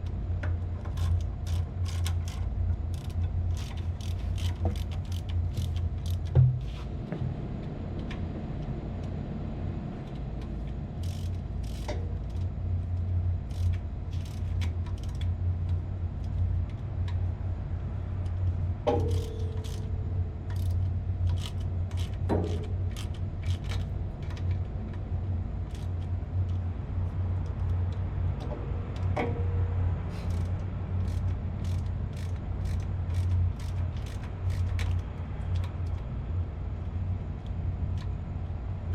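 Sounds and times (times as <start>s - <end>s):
low machinery hum: 0.0s - 38.9s
small clicks: 10.1s - 12.5s, 13.5s - 17.2s, 18.2s - 19.9s, 30.2s - 36.1s.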